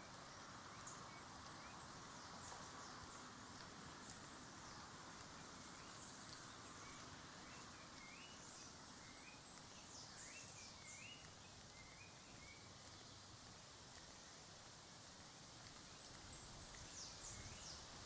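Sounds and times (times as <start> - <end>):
birds chirping: 0.0 - 14.4, 15.8 - 18.0
background hiss: 0.0 - 18.0.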